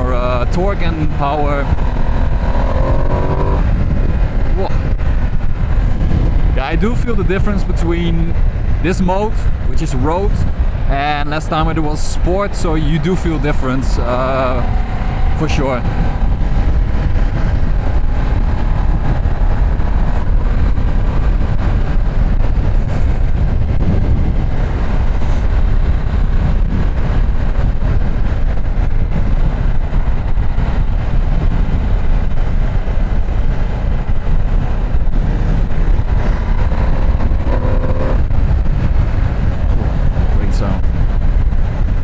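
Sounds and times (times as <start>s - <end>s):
motorcycle engine running: 0.0s - 6.6s, 14.1s - 42.0s
wind and road noise: 0.0s - 42.0s.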